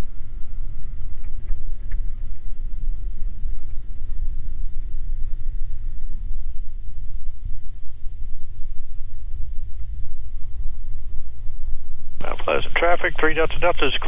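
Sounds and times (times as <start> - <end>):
faint ticks: 0.0 - 11.1
aircraft cabin engine rumble: 0.0 - 14.0.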